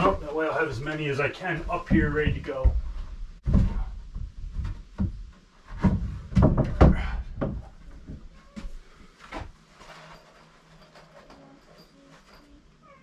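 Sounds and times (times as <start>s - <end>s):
wooden boards knocking: 1.9s - 8.2s.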